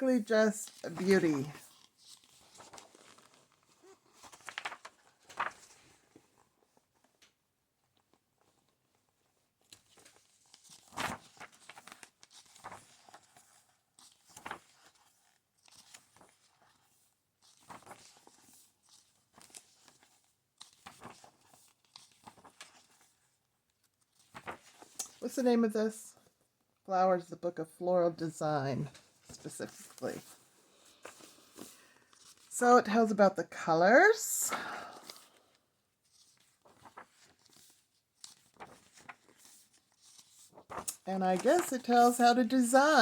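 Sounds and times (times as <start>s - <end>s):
book pages turning: 0.4s - 7.1s, 9.6s - 25.2s, 28.9s - 32.5s, 34.5s - 43.0s.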